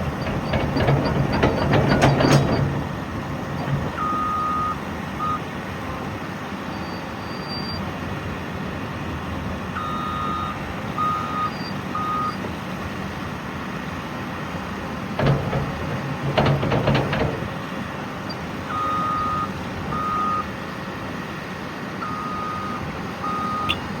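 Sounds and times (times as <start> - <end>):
loud clanks and knocks: 0.0 - 4.1, 15.0 - 18.1
diesel engine running: 0.0 - 7.3, 7.9 - 24.0
backup alarm beeping: 22.0 - 24.0.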